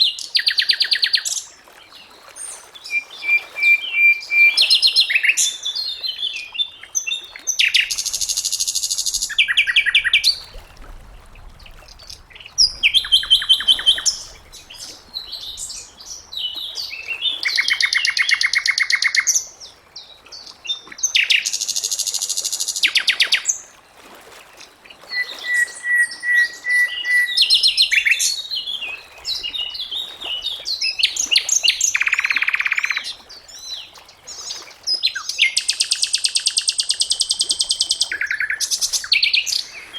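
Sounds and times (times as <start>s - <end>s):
bird singing trills and chirps: 2.8s - 10.6s, 11.6s - 19.5s, 25.1s - 39.9s.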